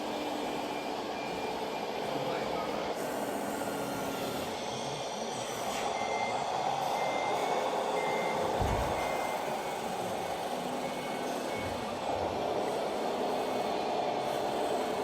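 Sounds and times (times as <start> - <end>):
steady background noise: 0.0 - 15.0
reversing warning beeps: 5.7 - 10.1, 10.7 - 12.0.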